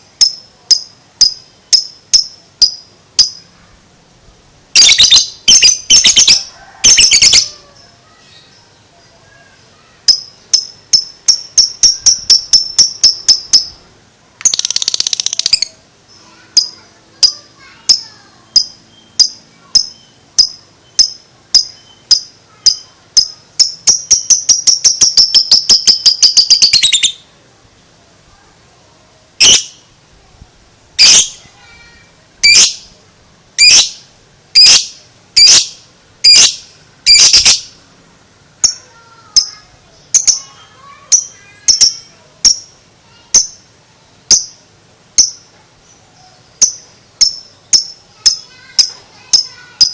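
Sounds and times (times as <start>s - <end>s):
lovebird sharp calls: 4.8s - 7.6s, 10.1s - 13.8s, 16.5s - 27.2s, 29.4s - 29.8s, 31.0s - 31.4s, 32.4s - 32.9s, 33.6s - 37.8s
lovebird shrill chirping: 4.8s - 8.7s, 9.4s - 13.8s, 14.4s - 27.2s, 29.4s - 29.8s, 31.0s - 31.4s, 32.4s - 32.9s, 33.6s - 37.8s, 38.6s - 42.7s, 45.2s - 49.9s.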